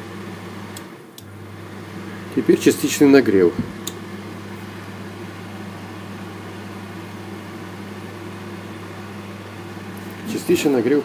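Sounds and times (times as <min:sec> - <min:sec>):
fan heater humming: 0:00.0 - 0:11.0.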